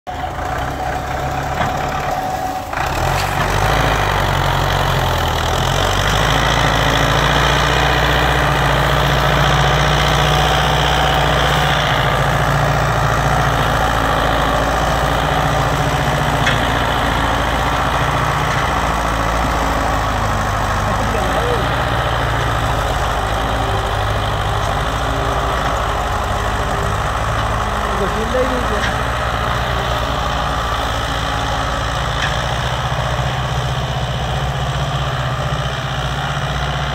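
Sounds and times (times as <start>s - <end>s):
tractor engine running: 0.1s - 36.9s.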